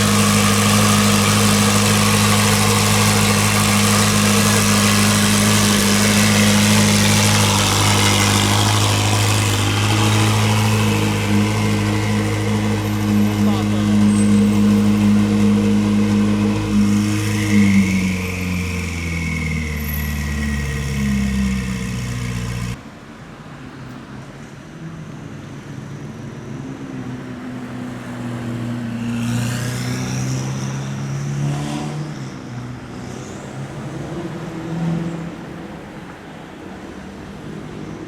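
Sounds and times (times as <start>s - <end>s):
car accelerating: 0.0s - 22.8s
car engine idling: 0.0s - 22.8s.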